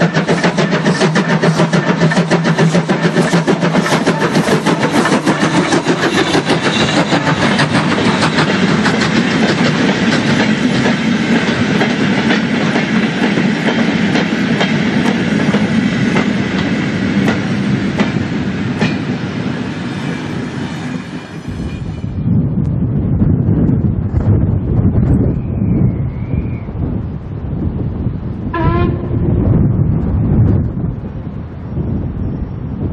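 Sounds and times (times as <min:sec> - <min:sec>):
train wheels clicking: 0:00.0 - 0:21.9
train rumble: 0:00.0 - 0:32.9.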